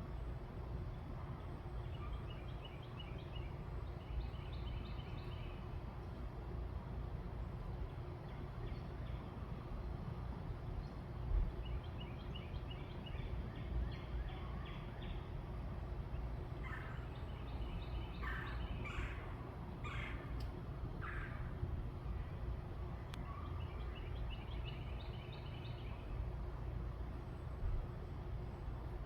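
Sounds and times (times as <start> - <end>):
wild birds calling: 11.6 - 22.4.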